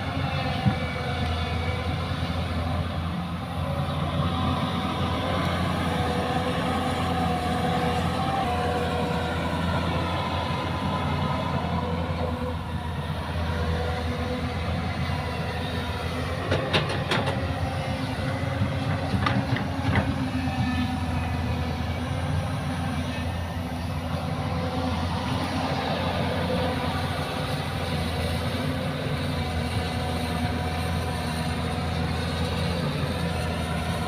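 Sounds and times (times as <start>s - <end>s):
heavy diesel engine running: 0.0s - 34.0s.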